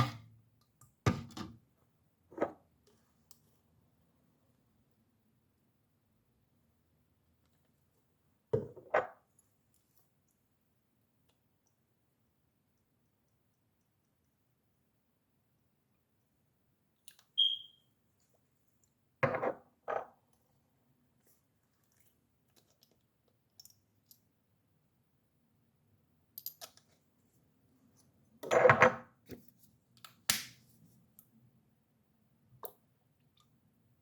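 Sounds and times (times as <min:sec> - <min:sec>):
short high beep: 0:17.4 - 0:17.8.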